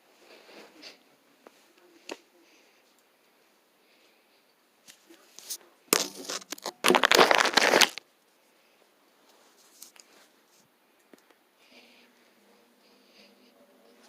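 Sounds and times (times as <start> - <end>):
loud crinkling rustle: 5.4 - 8.0.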